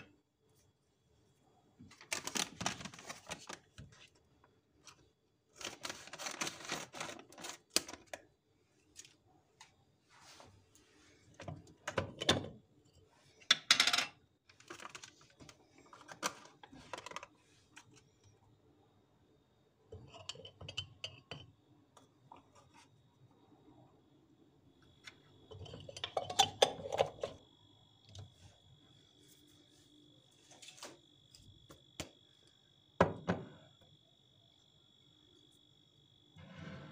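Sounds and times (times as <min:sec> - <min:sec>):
household items clattering: 0:25.5 - 0:27.4.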